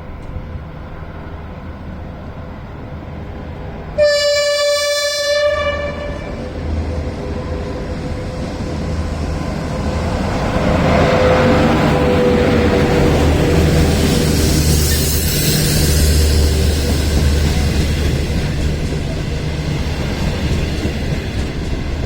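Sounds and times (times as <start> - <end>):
train rumble: 0.0 - 22.0
locomotive horn blast: 4.0 - 6.5.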